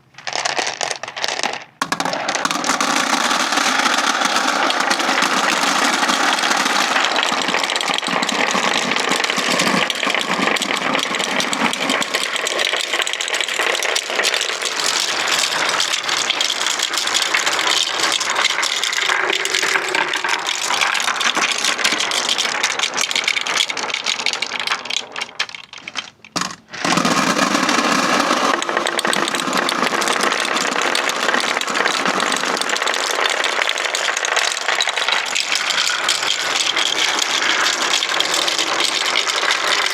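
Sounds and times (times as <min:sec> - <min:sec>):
marbles rattling down wooden ramps: 0:00.0 - 0:39.9.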